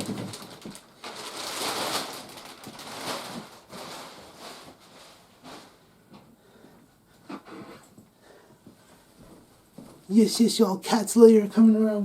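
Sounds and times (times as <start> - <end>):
packaging rustling: 0.0 - 5.8.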